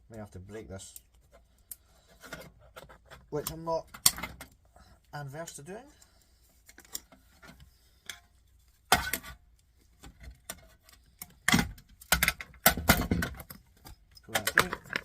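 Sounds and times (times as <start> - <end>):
loud cracks and knocks: 11.5 - 13.5.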